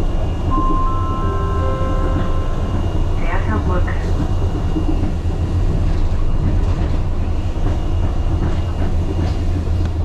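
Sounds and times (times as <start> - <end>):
railway car rumbling: 0.0 - 10.0.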